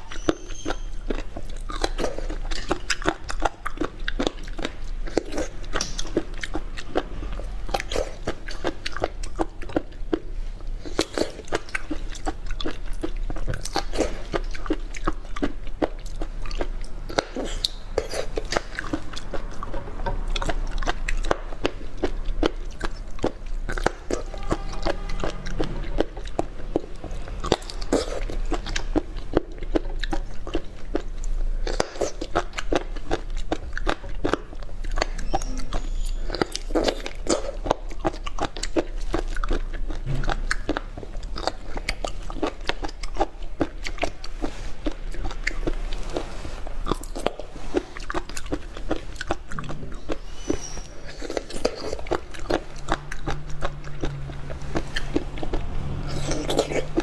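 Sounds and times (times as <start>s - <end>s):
wet chewing: 0.0s - 57.0s
small mouth clicks: 46.9s - 57.0s.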